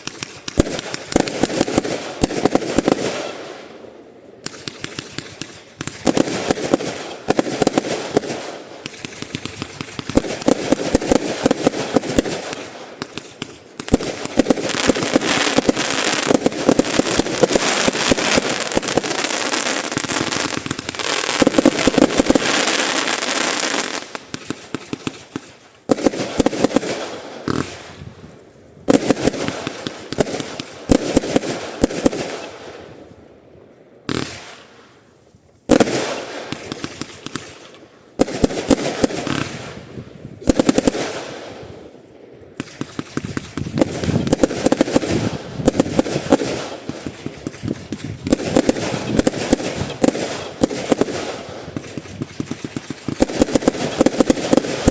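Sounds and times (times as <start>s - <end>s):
firework shots: 0.0s - 33.2s, 34.0s - 35.0s, 35.6s - 54.9s
fast crackling pops: 4.4s - 28.0s, 42.6s - 54.9s.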